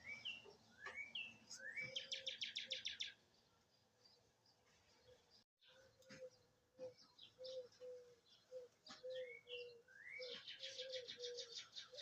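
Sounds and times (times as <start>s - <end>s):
small birds chirping: 0.0s - 12.0s
rising whistled bird notes: 9.1s - 12.0s.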